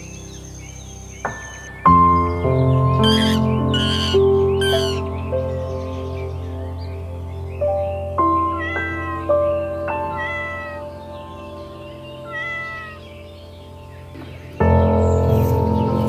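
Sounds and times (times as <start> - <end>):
background music: 0.0 - 16.0
kitten meowing: 3.0 - 5.0, 8.4 - 11.0, 12.2 - 13.1.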